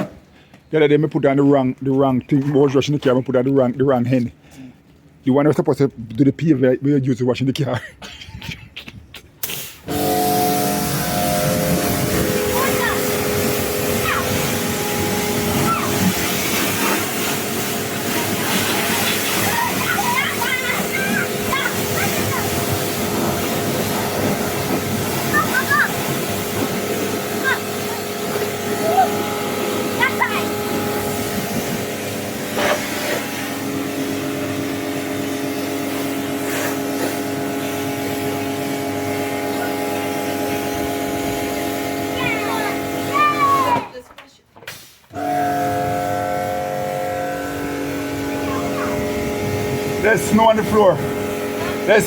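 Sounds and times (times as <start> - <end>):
pressure washer spraying water: 9.4 - 43.7, 44.7 - 52.0.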